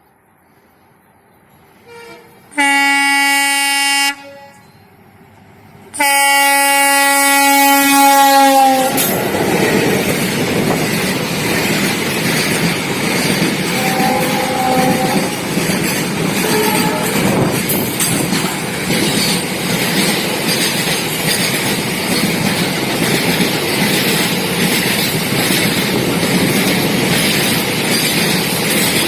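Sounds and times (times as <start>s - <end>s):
freight train passing rumble: 0.0s - 29.0s
locomotive horn blasts: 1.8s - 4.8s, 5.9s - 9.1s, 13.7s - 15.4s, 16.4s - 17.5s.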